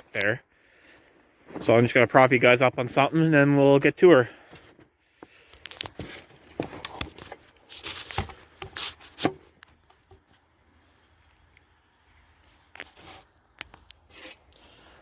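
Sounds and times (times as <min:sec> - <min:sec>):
camera handling rustle: 0:05.4 - 0:10.5, 0:12.4 - 0:14.6.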